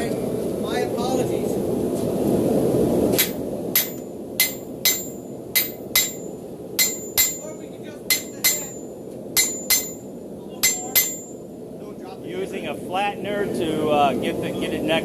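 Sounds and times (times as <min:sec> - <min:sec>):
hammer striking metal on anvil: 0:03.2 - 0:11.4.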